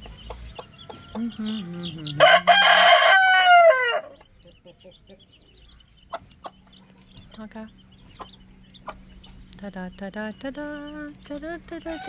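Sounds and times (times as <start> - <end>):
chicks peeping: 0.0 - 12.0
rooster crowing: 2.2 - 4.2.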